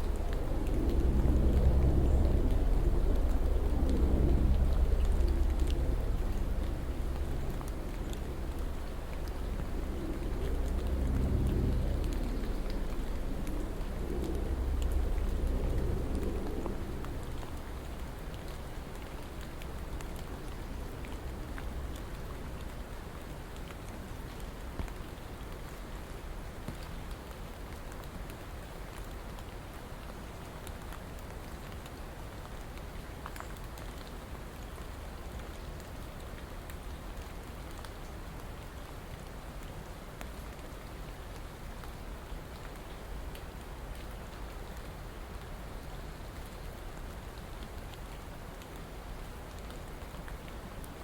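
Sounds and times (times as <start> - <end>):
low rumble: 0.0 - 22.2
steady rain with ticking drops: 0.0 - 51.0.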